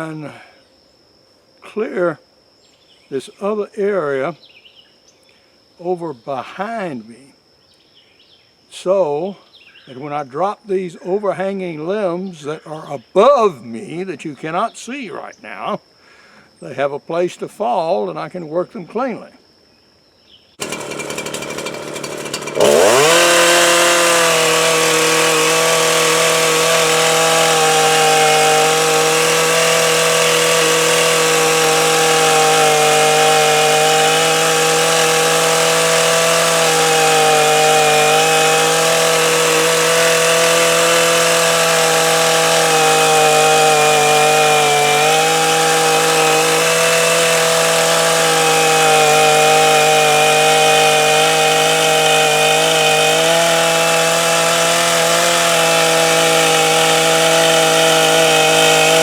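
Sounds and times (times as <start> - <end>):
chainsaw revving: 20.6 - 59.0.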